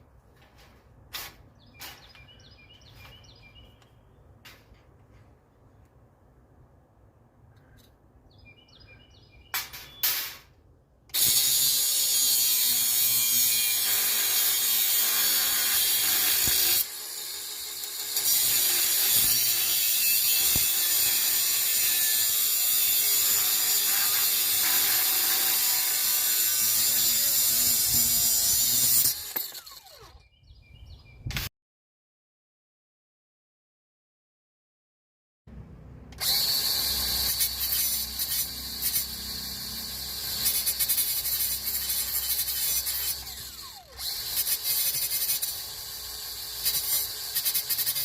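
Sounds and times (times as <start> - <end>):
power tool working metal: 11.1 - 30.2, 36.1 - 48.0.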